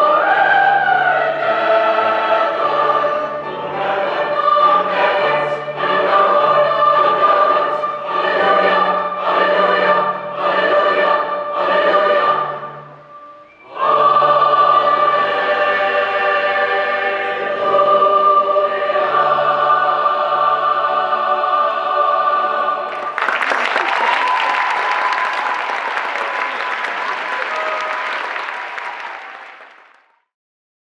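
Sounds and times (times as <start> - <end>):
choir singing: 0.0 - 23.7
audience applause: 22.9 - 30.2.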